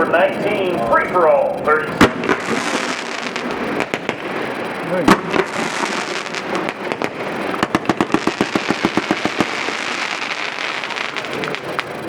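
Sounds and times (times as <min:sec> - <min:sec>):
firework crackle: 0:00.0 - 0:12.0
firework report: 0:00.0 - 0:12.0
rapid firework pops: 0:01.9 - 0:12.0.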